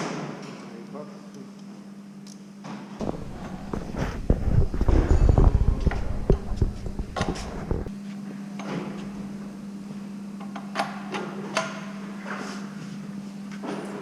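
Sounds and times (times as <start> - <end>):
steady low hum: 3.0 - 10.4.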